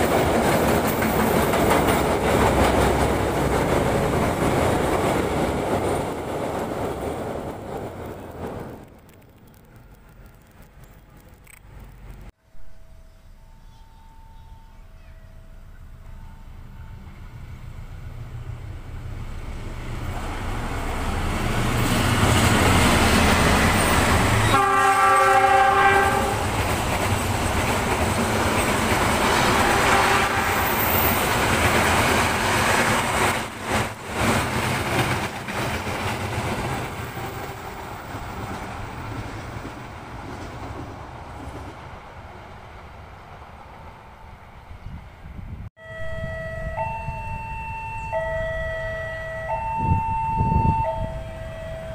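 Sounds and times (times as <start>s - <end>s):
locomotive engine: 0.0s - 12.3s, 13.1s - 44.7s
carriages rumbling and clattering: 0.0s - 12.4s, 19.0s - 41.9s
train horn blast: 24.4s - 26.6s, 29.5s - 31.2s.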